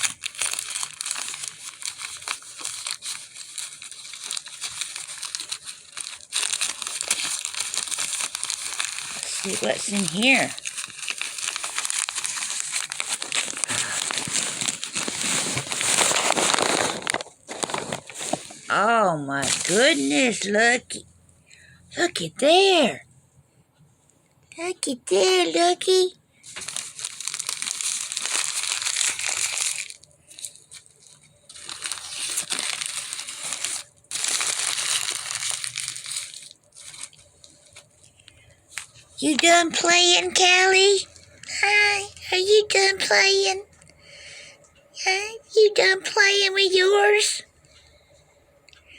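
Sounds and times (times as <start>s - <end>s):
paper crinkling and rustling: 0.0s - 20.4s, 25.2s - 42.0s.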